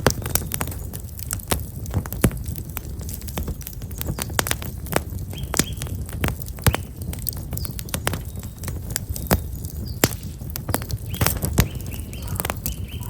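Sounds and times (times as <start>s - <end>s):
campfire crackling: 0.0s - 13.0s
small birds chirping: 2.9s - 13.0s.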